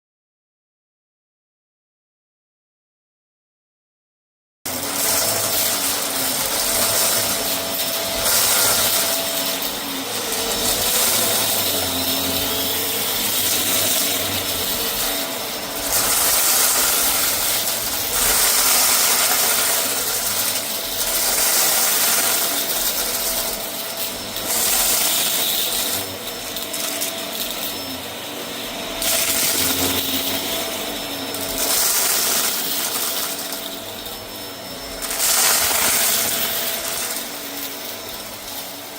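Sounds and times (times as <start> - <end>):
vacuum cleaner running over rug: 4.7 - 38.9.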